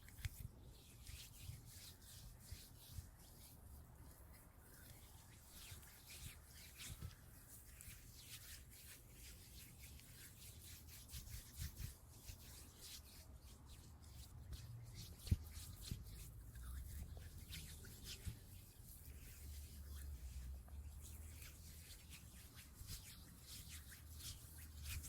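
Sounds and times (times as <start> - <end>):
scratching and rubbing on a surface: 0.0 - 25.0.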